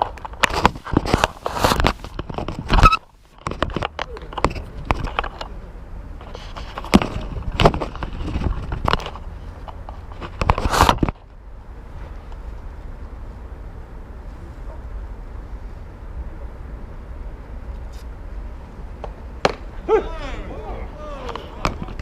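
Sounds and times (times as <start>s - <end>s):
steady background noise: 0.0s - 22.0s
players shouting: 19.5s - 22.0s.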